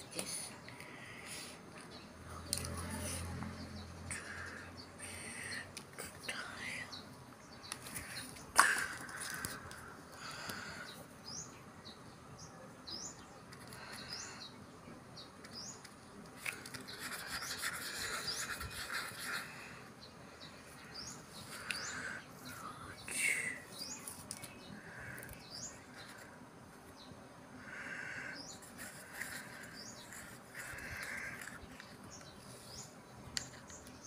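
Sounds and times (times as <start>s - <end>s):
bird chirping: 10.3s - 15.9s, 16.5s - 26.3s, 26.9s - 34.0s.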